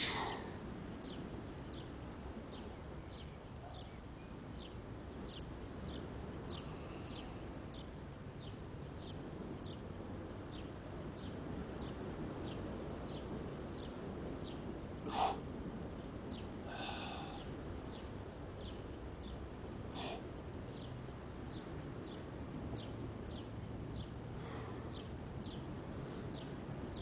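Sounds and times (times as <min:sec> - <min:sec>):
bird chirping: 0:00.0 - 0:09.8, 0:24.9 - 0:25.7.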